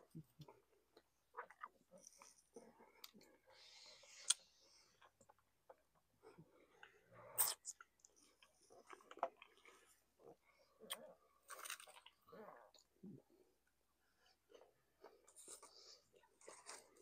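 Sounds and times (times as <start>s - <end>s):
chewing and crunching food: 0.0s - 17.0s
wet mouth clicks: 7.4s - 8.1s.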